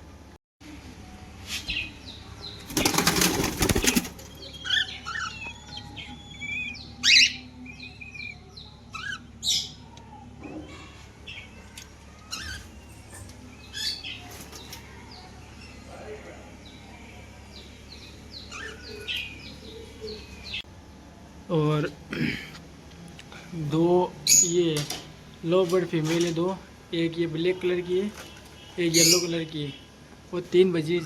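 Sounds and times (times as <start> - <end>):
wing flapping: 2.6 - 4.4
parrots chirping and calling: 3.7 - 7.5, 8.1 - 9.9, 12.2 - 14.3, 18.0 - 20.6, 28.9 - 29.4.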